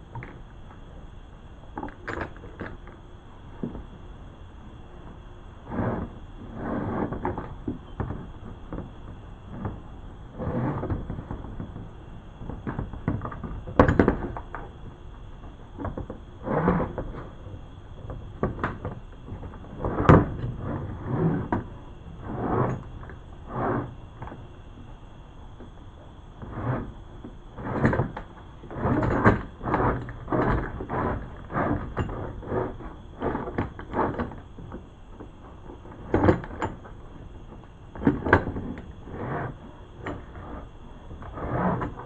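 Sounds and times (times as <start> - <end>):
scraping rubbing and knocking: 5.6 - 14.7, 15.8 - 24.5, 26.4 - 42.0.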